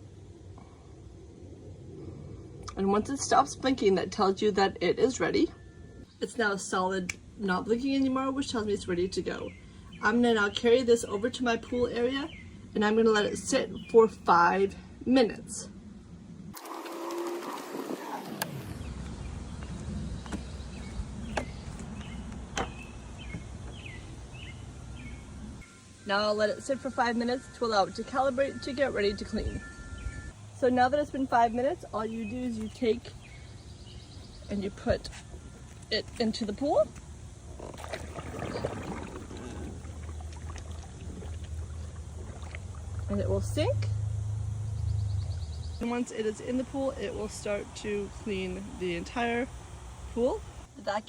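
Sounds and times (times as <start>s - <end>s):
wind rumble on microphone: 0.0s - 6.1s, 17.5s - 25.7s, 28.5s - 30.3s
steady low hum: 0.0s - 51.0s
birds chirping: 7.5s - 14.6s, 16.7s - 49.4s
water splashing and bubbling: 37.4s - 44.2s.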